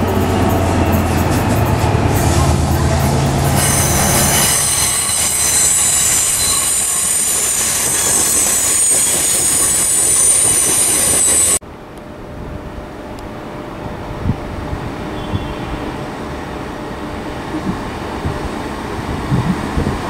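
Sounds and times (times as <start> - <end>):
distant train rumble: 0.0 - 20.0
train rumbling: 0.0 - 20.0
train wheels squealing: 3.5 - 11.6.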